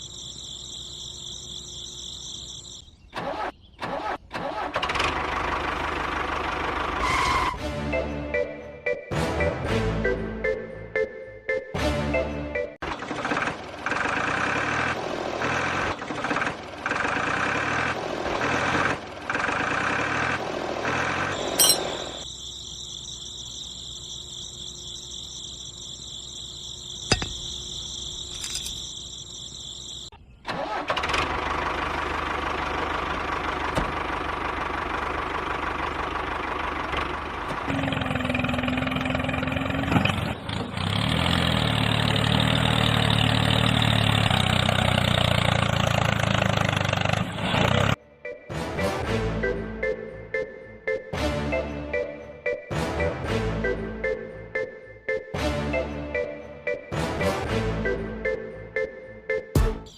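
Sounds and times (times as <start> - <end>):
model tractor engine running: 4.0 - 7.0, 12.8 - 20.4, 26.8 - 48.0.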